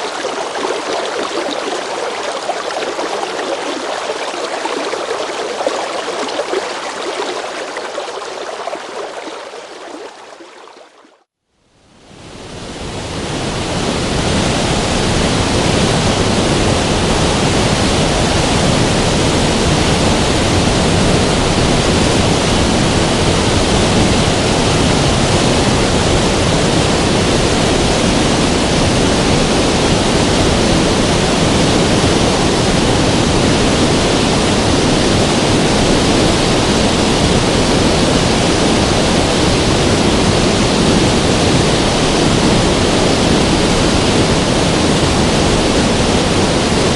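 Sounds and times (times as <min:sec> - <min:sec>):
river water rushing: 0:00.0 - 0:11.2, 0:12.2 - 0:46.9.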